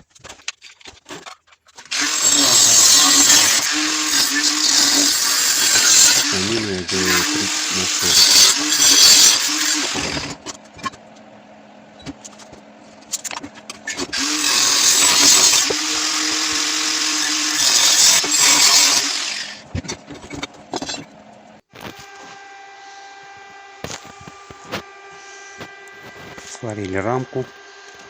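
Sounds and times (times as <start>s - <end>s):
power tool cutting steel: 1.8s - 28.0s
electrical hum: 2.1s - 18.8s.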